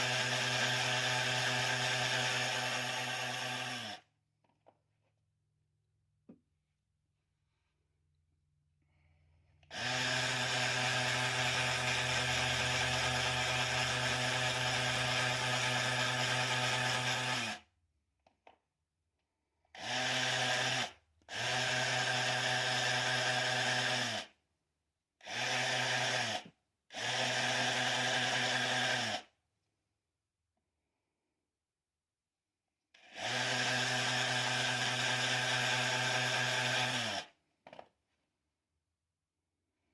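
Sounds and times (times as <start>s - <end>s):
electric power tool motor: 0.0s - 4.1s, 9.7s - 17.6s, 19.8s - 24.3s, 25.2s - 29.3s, 33.0s - 37.4s.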